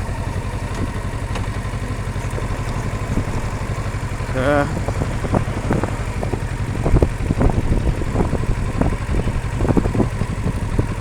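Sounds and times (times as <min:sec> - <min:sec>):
motorcycle engine idling: 0:00.0 - 0:11.0
wind buffeting microphone: 0:00.0 - 0:11.0.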